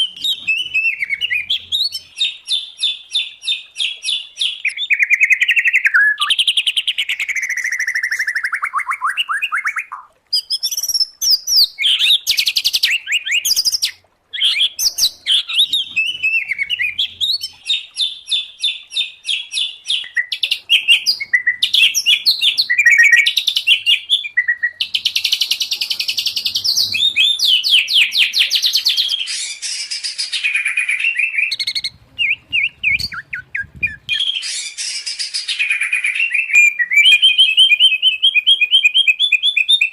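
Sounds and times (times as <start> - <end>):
birdsong whistles and trills: 0.0 - 39.9.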